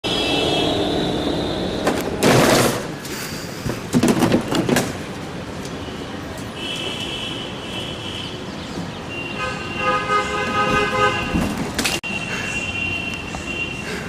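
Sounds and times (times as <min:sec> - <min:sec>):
car horns honking: 0:00.0 - 0:02.3, 0:09.1 - 0:11.6
loud rough burst of noise: 0:00.0 - 0:03.9.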